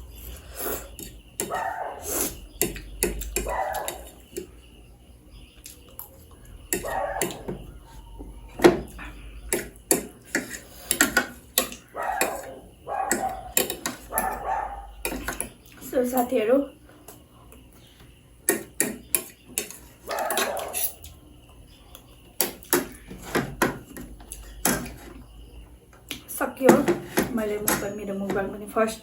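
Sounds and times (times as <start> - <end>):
utensils clicking against dishes: 1.0 - 4.5, 9.5 - 16.3, 18.5 - 21.2.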